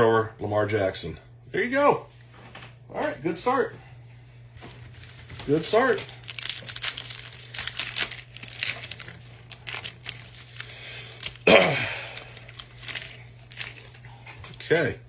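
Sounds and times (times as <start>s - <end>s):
card pack wrapper crinkling: 4.7s - 14.7s.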